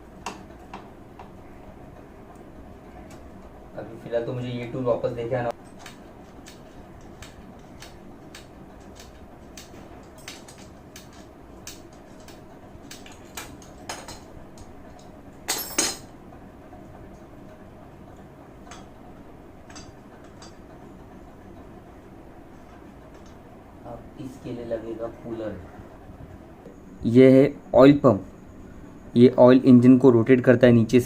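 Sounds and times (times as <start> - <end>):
metal tools clinking: 15.5 - 16.1.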